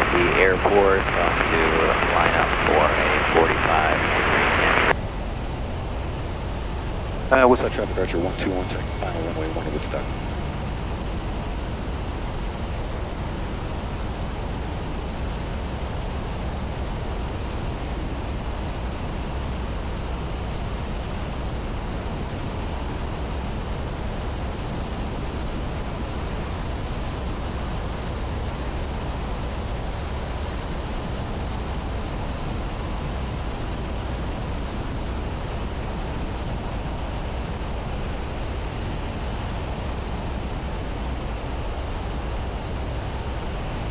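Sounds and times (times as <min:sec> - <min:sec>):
propeller plane engine droning: 0:00.0 - 0:43.9.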